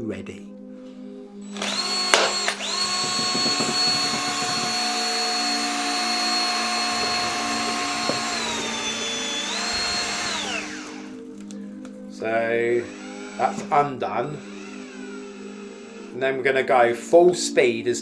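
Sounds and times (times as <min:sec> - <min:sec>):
power drill whining: 0:01.4 - 0:11.6, 0:12.6 - 0:16.7.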